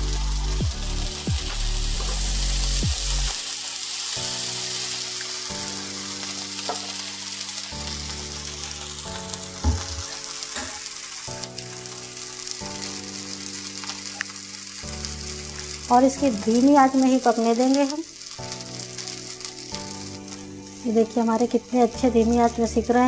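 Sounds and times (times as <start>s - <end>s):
batter sizzling in oil: 0.0s - 23.0s.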